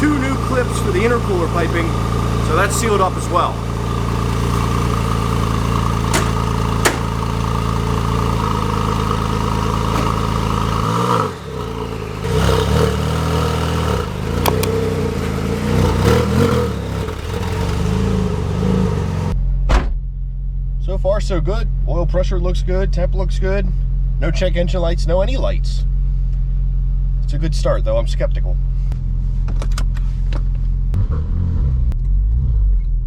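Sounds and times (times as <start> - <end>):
car engine idling and revving: 0.0 - 19.4, 28.6 - 33.0.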